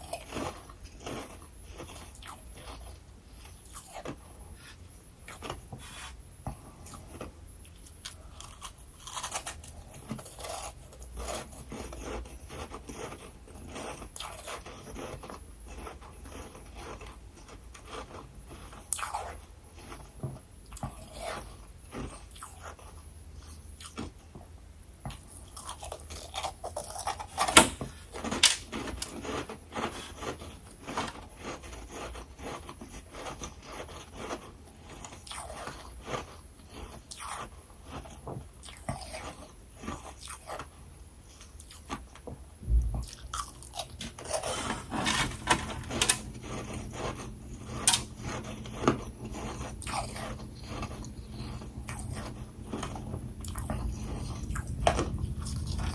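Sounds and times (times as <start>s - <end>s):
crunching frost: 43.4s - 55.9s.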